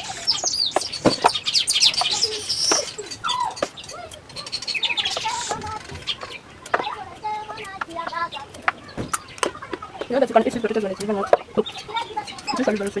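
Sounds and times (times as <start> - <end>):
small birds chirping: 0.0 - 13.0
sharp knocks: 0.7 - 1.4, 8.6 - 10.1.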